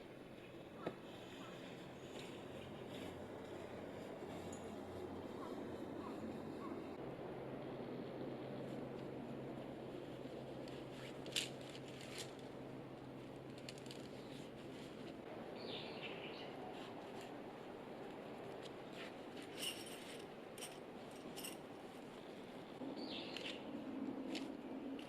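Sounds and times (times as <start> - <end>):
outdoor background noise: 0.0 - 25.0
camping gear clinking: 2.0 - 6.9, 18.6 - 22.3.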